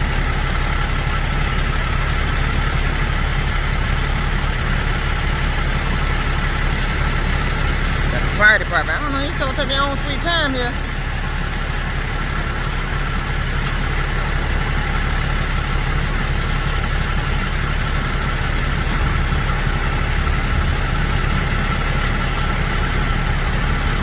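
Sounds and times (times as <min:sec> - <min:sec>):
truck diesel engine idling: 0:00.0 - 0:24.0.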